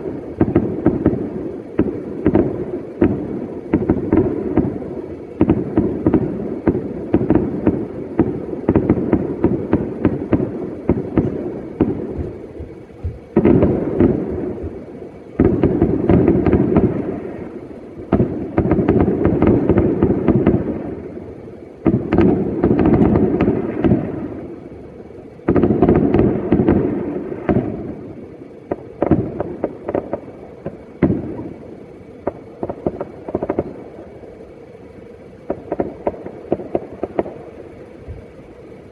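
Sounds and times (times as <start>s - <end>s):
firework bangs: 0.0s - 38.9s
fireworks crackling: 0.0s - 38.9s
rapid popping: 28.6s - 34.5s, 35.4s - 38.9s.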